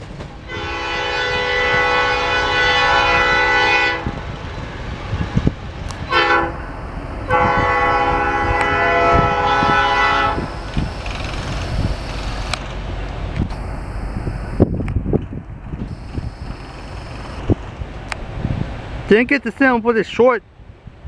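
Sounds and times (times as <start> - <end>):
train rumbling past: 0.0 - 19.8
locomotive air horn blasts: 0.4 - 4.2, 6.0 - 12.5, 15.8 - 17.5.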